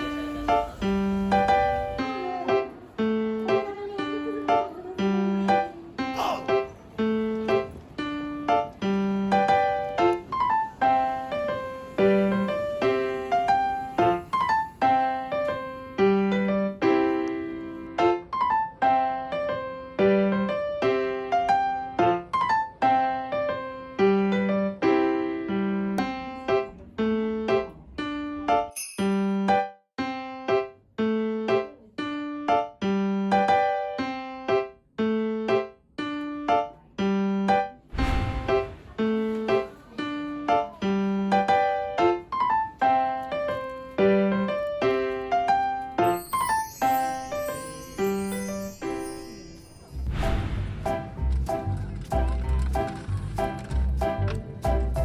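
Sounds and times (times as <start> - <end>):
gentle piano melody: 0.0 - 55.0
gentle keyboard melody: 39.6 - 50.1.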